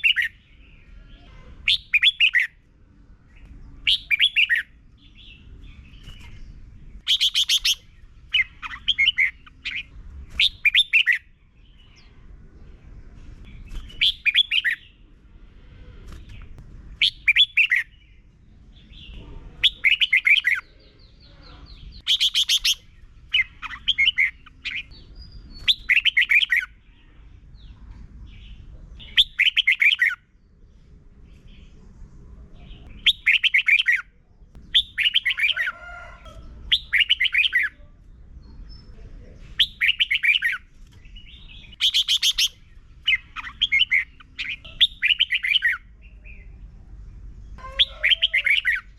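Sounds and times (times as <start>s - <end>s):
bulbul singing warbled phrases: 0.0s - 2.6s, 3.8s - 12.2s, 13.6s - 15.0s, 18.8s - 27.2s, 32.6s - 35.7s, 36.7s - 46.8s
faint low rumble: 7.7s - 19.9s.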